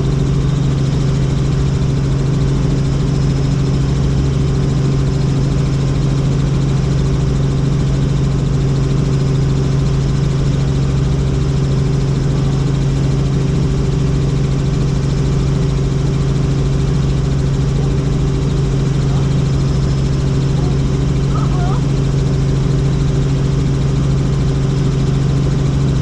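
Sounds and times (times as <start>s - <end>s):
helicopter drone in cabin: 0.0s - 26.0s.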